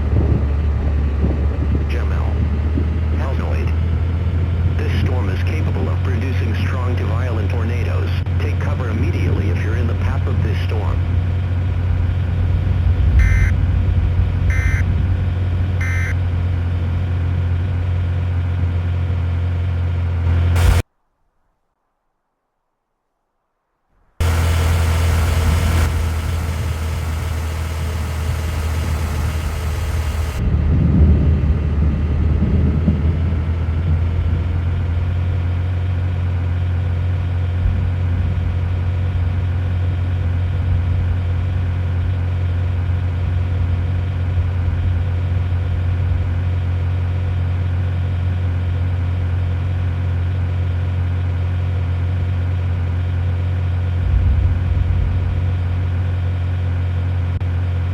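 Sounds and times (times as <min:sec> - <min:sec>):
motor vehicle droning: 0:00.0 - 0:20.8, 0:24.2 - 0:57.9.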